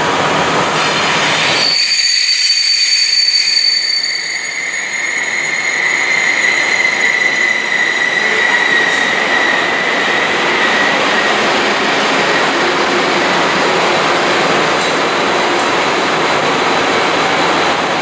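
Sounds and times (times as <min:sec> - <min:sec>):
train wheels rumbling on rail: 0:00.0 - 0:18.0
high steady squeal: 0:00.6 - 0:13.9.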